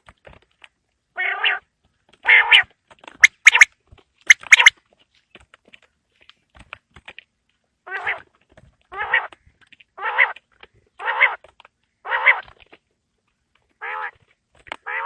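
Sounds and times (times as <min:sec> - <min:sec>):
quail calling: 0:02.2 - 0:03.7, 0:04.3 - 0:04.7, 0:08.9 - 0:09.4, 0:10.0 - 0:10.4, 0:11.0 - 0:11.4, 0:12.0 - 0:12.5, 0:13.8 - 0:14.2.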